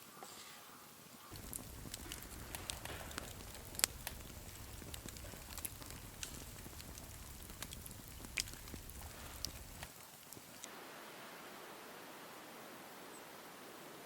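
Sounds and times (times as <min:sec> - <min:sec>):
campfire crackling and popping: 0:01.3 - 0:10.7
low steady rumble: 0:01.4 - 0:09.9.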